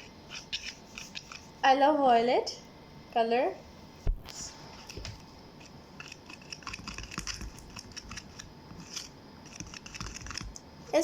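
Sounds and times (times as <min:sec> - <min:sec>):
utensil scraping a bowl: 0:00.0 - 0:01.6, 0:05.6 - 0:10.5.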